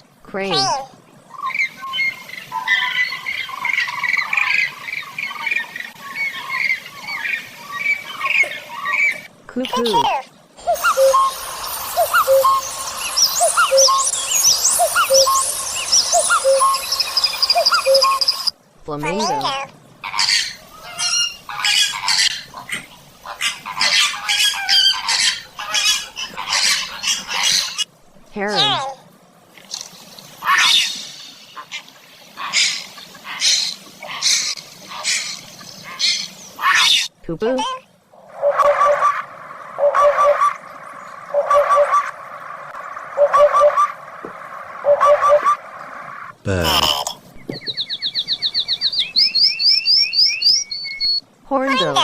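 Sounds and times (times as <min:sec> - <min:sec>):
flamingos honking: 0:10.6 - 0:27.8, 0:38.4 - 0:46.4
cranes honking calls: 0:38.4 - 0:46.3.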